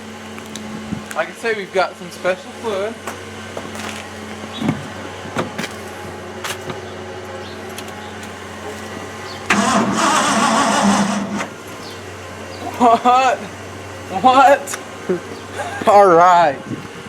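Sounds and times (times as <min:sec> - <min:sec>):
engine cranking without starting: 0:09.3 - 0:11.9.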